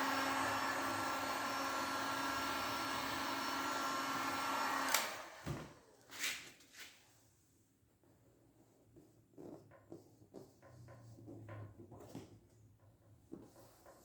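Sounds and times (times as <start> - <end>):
electric blower motor whining: 0.0 - 5.7.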